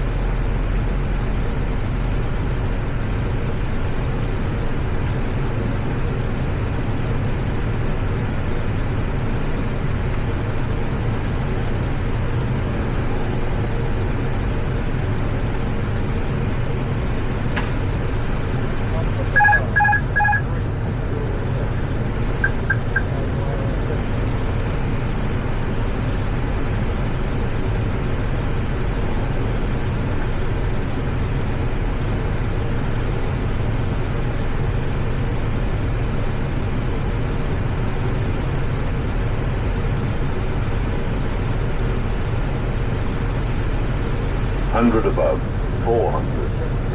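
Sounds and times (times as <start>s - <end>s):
aircraft cockpit engine rumble: 0.0s - 46.9s
short electronic beeps: 19.3s - 20.5s, 22.1s - 23.2s.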